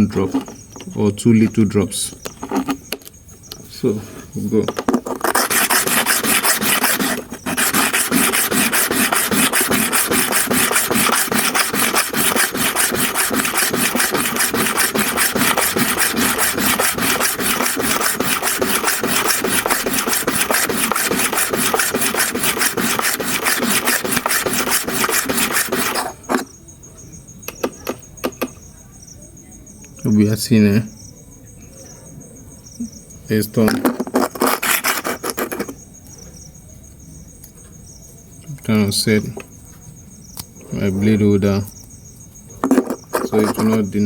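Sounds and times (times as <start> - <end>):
blade rasping on sharpening stone: 5.1 - 26.5, 34.2 - 35.7.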